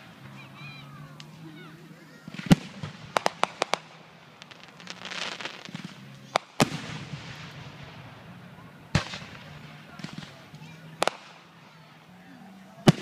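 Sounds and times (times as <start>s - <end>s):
fireworks crackling hiss: 0.0s - 13.0s
fireworks cracks and bangs: 2.2s - 12.0s.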